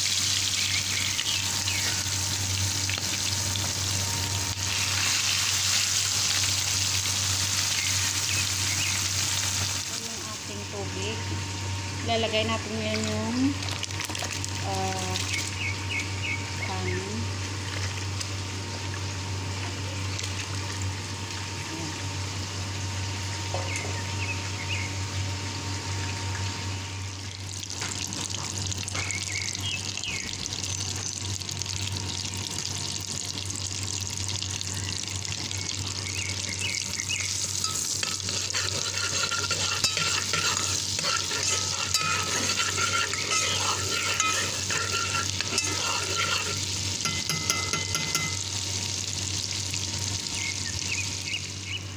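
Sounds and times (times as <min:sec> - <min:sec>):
steady low hum: 0:00.0 - 0:27.6, 0:28.6 - 0:51.9
food frying in oil: 0:00.0 - 0:51.9
metal spoon stirring pan: 0:37.3 - 0:48.5.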